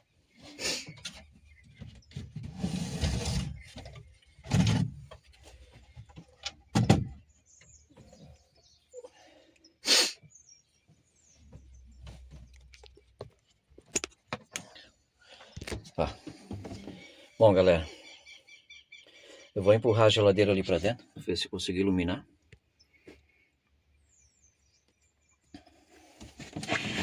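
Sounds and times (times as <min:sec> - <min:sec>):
wooden drawer scraping open: 0:02.2 - 0:05.1
knocks and thumps of drawer: 0:04.5 - 0:05.1.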